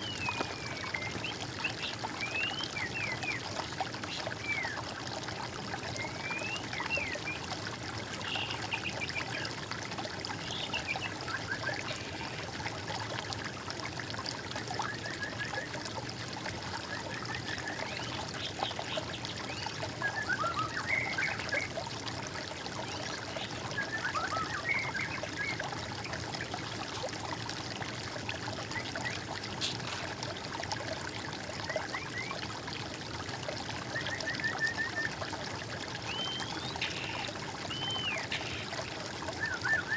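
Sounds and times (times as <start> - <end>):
water trickling: 0.0 - 39.9
songbirds chirping: 36.0 - 39.9.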